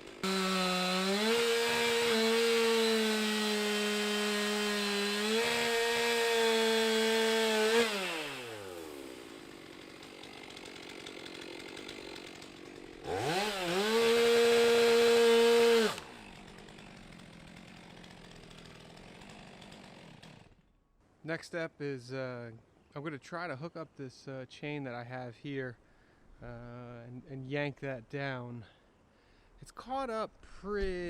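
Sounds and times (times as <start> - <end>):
chainsaw revving: 0.0 - 20.6.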